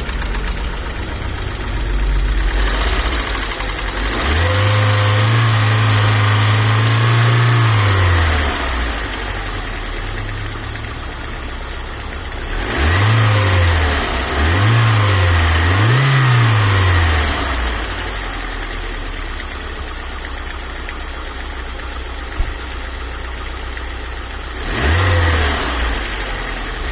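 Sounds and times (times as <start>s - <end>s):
car engine idling and revving: 0.0s - 26.9s
engine lifter knock: 22.3s - 22.8s.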